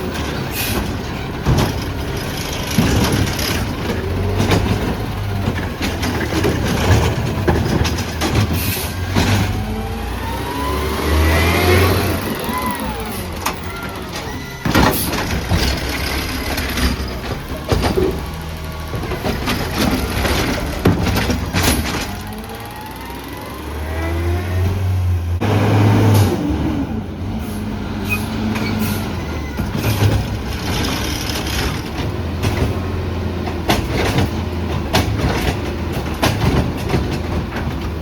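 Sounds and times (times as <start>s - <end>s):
loud clanks and bangs: 0.0s - 26.6s, 28.2s - 38.0s
diesel engine running: 0.0s - 38.0s
hydraulic whine: 8.2s - 26.5s.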